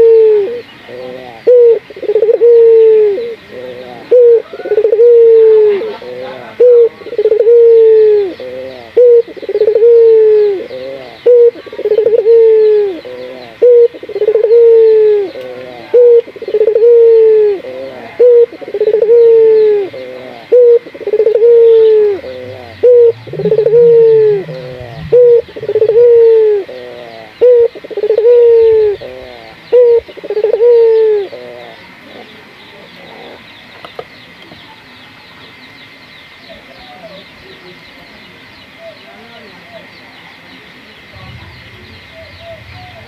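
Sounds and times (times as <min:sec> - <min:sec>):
dove cooing: 0:00.0 - 0:31.8, 0:41.1 - 0:43.0.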